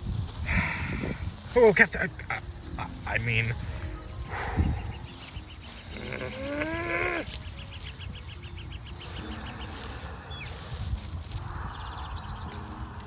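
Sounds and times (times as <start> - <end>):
crickets chirping: 0.0 - 13.0
bleat-like animal call: 5.9 - 7.4.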